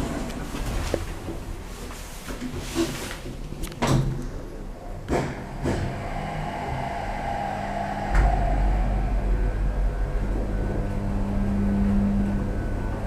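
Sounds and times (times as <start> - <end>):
lift pump motor humming: 5.4 - 13.0.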